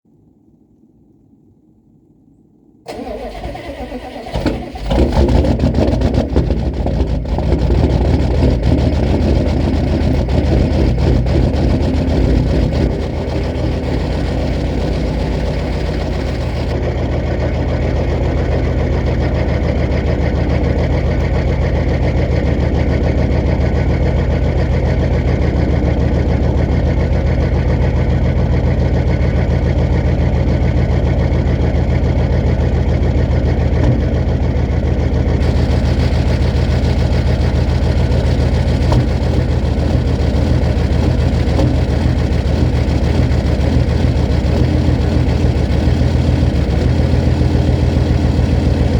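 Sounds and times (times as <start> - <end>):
diesel engine idling: 2.9 - 48.9.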